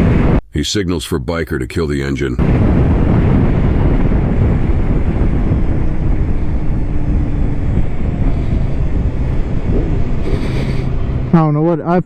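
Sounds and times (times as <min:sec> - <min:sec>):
wind rumbling on microphone: 0:00.0 - 0:00.4, 0:02.4 - 0:12.0
faint motorcycle engine hum: 0:02.8 - 0:12.0.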